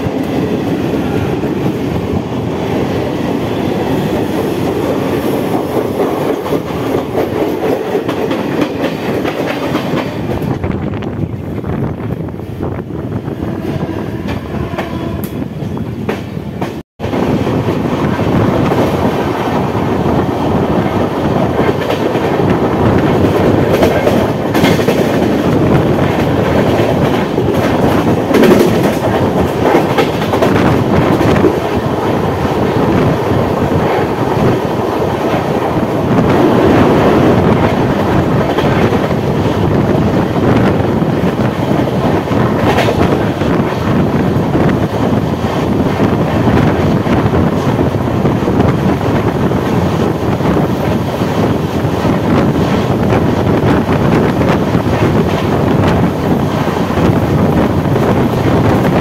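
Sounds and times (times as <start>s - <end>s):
train wheels clacking over rail joints: 20.8s - 39.7s.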